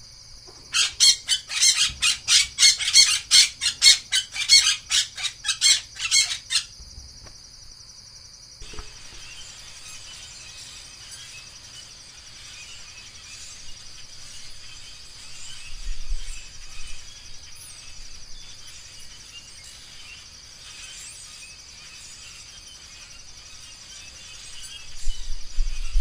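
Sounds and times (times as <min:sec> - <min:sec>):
bird sharp calls: 0:00.7 - 0:06.8.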